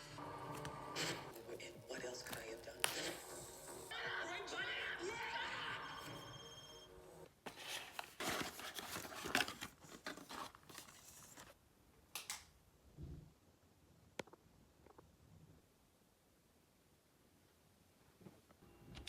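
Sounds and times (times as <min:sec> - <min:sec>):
packaging tearing and crinkling: 0:07.5 - 0:11.5.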